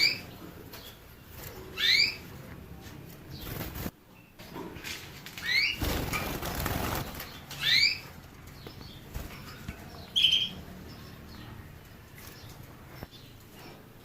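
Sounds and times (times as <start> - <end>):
finch chirping: 0.0 - 2.3, 5.4 - 13.8
finch wings fluttering: 5.4 - 7.8.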